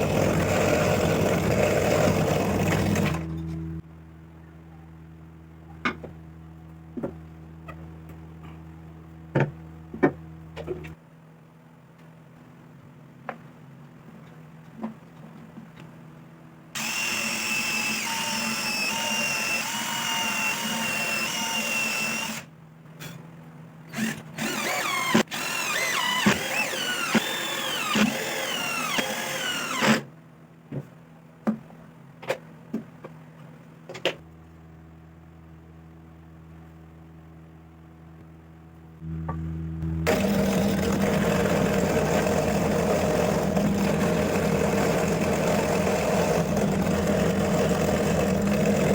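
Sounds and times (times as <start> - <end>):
power tool motor whining: 0.0 - 3.3, 16.8 - 22.5, 23.9 - 30.1, 39.9 - 48.9.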